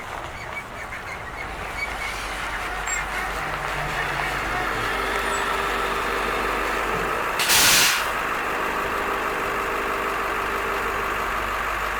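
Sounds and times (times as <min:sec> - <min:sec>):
bus diesel engine idling: 0:00.0 - 0:11.9
air brake hiss: 0:07.4 - 0:08.2.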